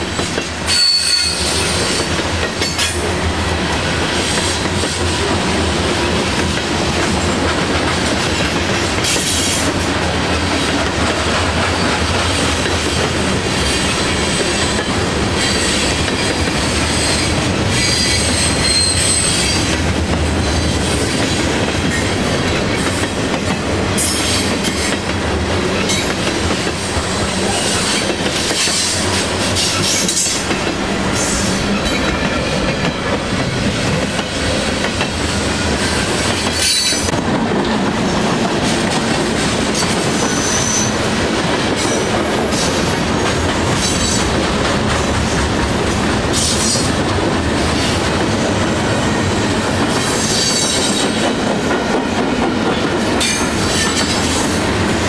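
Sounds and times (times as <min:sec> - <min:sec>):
rail joint clicks: 0:00.0 - 0:55.0
train wheels clattering on rails: 0:00.0 - 0:55.0
high wheel squeals: 0:00.7 - 0:02.0, 0:16.9 - 0:19.6.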